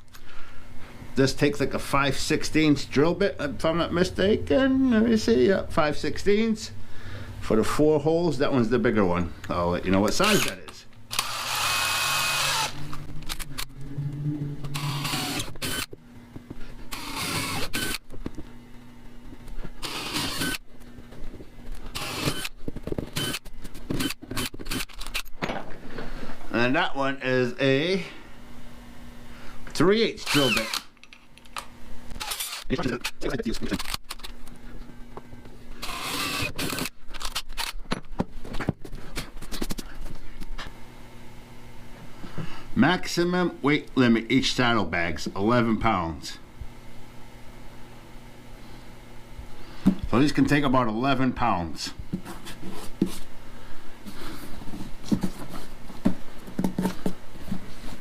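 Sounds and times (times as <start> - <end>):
power drill motor hum: 10.1 - 18.4, 19.8 - 20.6, 21.8 - 25.2, 30.2 - 30.9, 32.1 - 32.7, 35.8 - 37.7
drill bits and metal parts clattering: 21.9 - 25.8.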